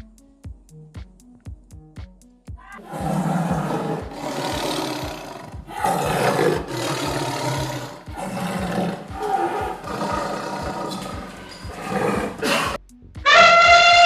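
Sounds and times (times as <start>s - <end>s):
low thumping beat: 0.0s - 14.0s
large animal roaring: 2.8s - 12.8s.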